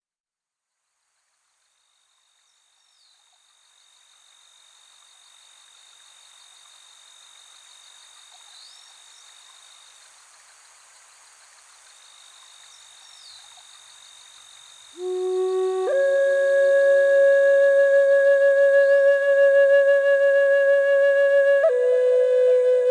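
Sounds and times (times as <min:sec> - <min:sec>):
insects trilling: 0:01.0 - 0:22.9
even hiss: 0:02.2 - 0:22.9.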